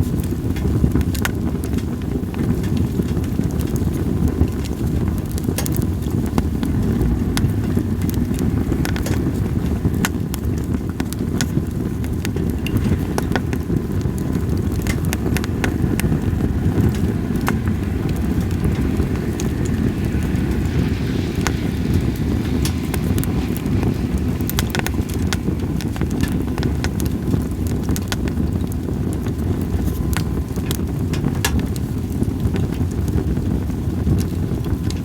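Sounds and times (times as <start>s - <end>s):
campfire crackling and popping: 0.0s - 35.0s
low wind rumble: 0.0s - 35.0s.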